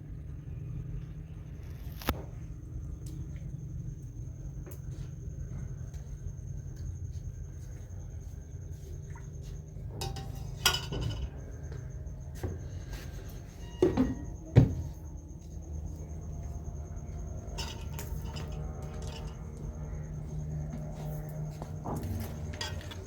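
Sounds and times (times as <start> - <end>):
steady low hum: 0.0 - 23.0
dishes and metal utensils clinking: 10.0 - 11.4, 17.6 - 19.6, 22.5 - 23.0.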